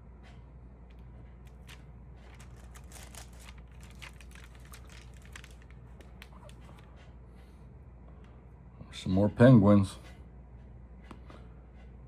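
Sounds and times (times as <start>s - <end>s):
album pages turning: 1.5s - 6.8s.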